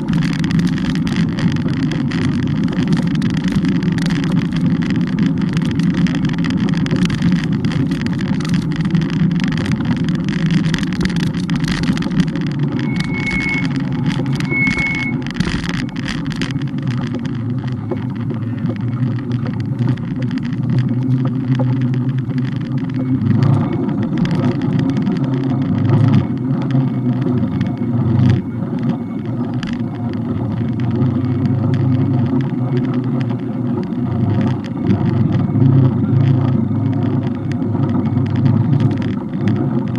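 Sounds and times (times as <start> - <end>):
road noise: 0.0 - 39.9
wind: 0.0 - 39.9
short high beeps: 12.7 - 16.0.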